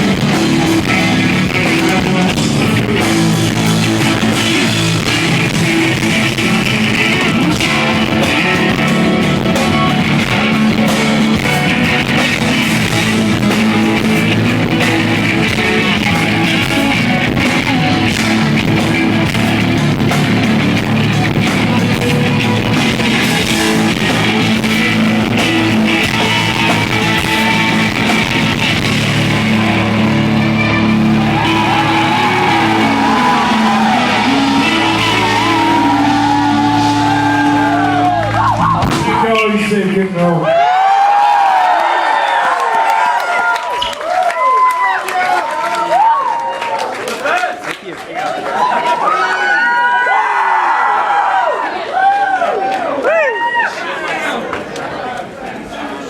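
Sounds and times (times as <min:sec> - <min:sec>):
live rock band playing: 0:00.0 - 0:40.1.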